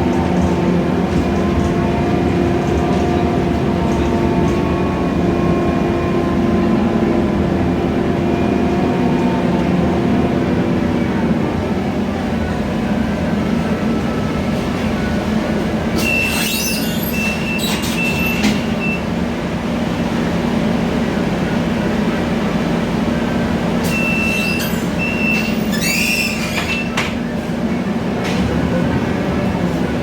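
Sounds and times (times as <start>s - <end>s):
bus engine and road drone: 0.0s - 30.0s
high squeal with rattling: 16.0s - 19.0s, 23.8s - 27.1s.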